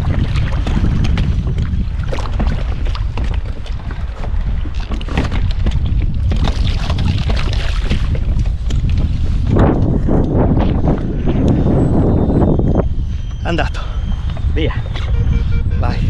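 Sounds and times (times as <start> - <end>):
water splashing against hull: 0.0 - 11.1
wind buffeting microphone: 0.0 - 16.0.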